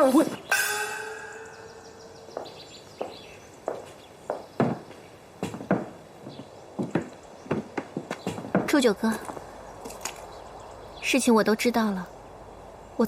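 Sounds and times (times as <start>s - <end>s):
faint steady tone: 0.5s - 2.4s.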